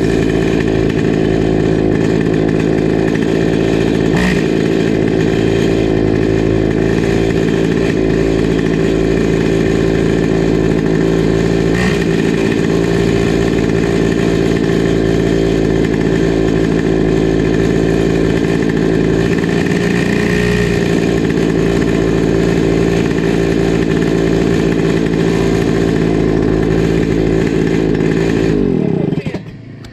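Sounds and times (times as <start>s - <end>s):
two-stroke go-kart engine running: 0.0s - 29.9s.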